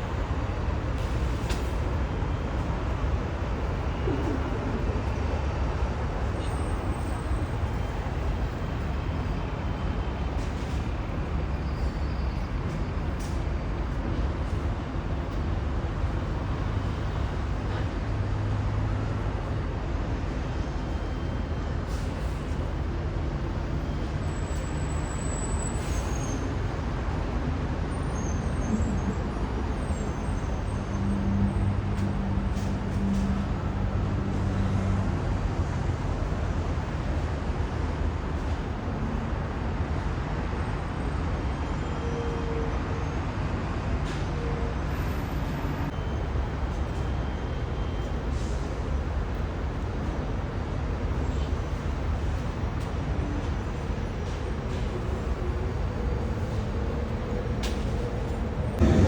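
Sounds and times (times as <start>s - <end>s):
heavy vehicle engine hum: 0.0s - 59.0s
street traffic rumble: 0.0s - 59.0s
passing vehicles rushing: 54.4s - 59.0s.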